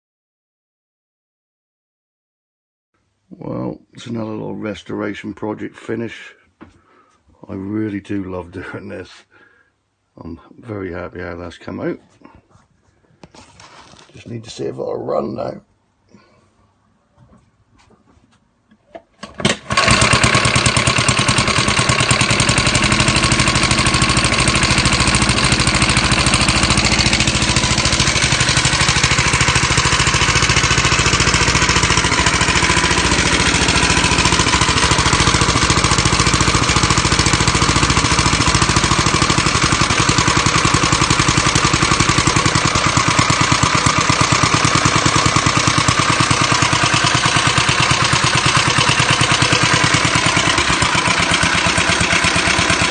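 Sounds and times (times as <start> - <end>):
small engine starting and running: 13.3 - 14.1, 19.2 - 52.9.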